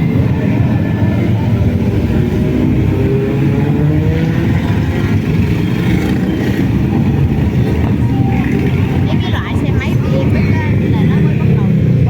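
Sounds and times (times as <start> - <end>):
motorcycle engine revving: 0.0 - 12.0
motorcycle engines rumbling: 0.0 - 12.0.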